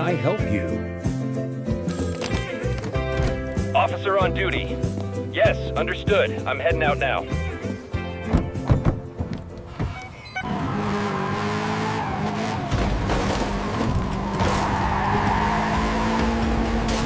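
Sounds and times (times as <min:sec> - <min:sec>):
tyres squealing: 0:08.4 - 0:12.6, 0:13.6 - 0:16.8
car engine speeding off: 0:10.4 - 0:17.0.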